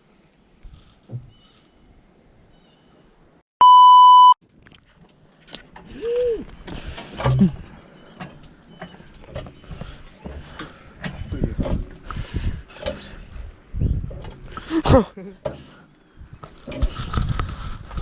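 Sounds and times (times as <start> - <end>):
loud electronic bleep: 3.6 - 4.4.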